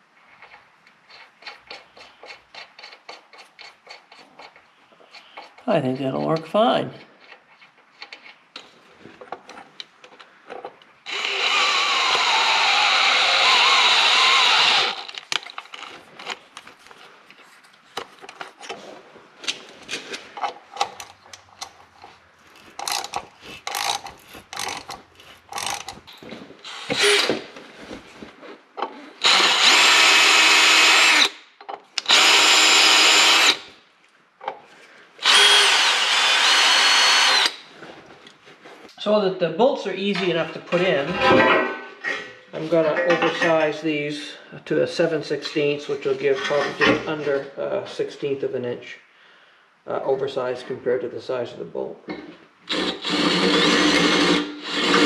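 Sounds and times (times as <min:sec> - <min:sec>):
electric drill on steel plate: 0:11.1 - 0:15.2, 0:26.6 - 0:27.4, 0:29.2 - 0:31.4, 0:32.0 - 0:33.7, 0:35.2 - 0:37.6, 0:52.7 - 0:55.0.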